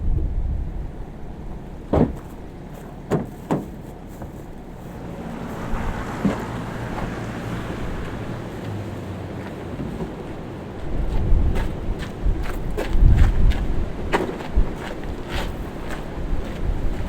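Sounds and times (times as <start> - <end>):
low rumble: 0.0 - 3.1
short knocks: 1.9 - 4.5.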